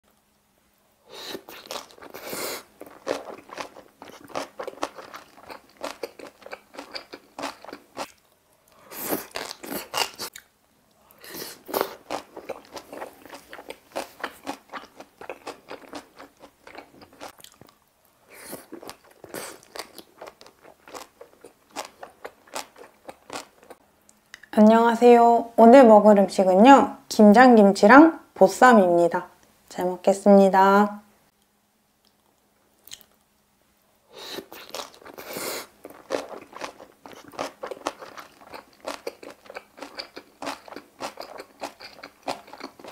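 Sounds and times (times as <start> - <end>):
crisp wet chewing crunches: 1.4 - 8.2, 11.6 - 17.8, 18.5 - 23.8, 34.4 - 42.9.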